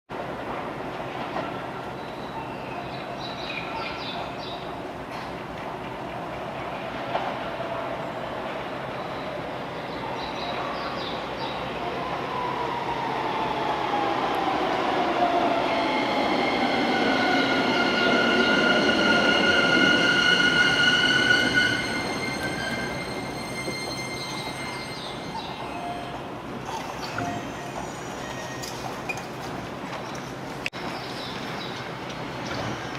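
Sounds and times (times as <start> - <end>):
electric train running rumble: 12.4 - 30.1.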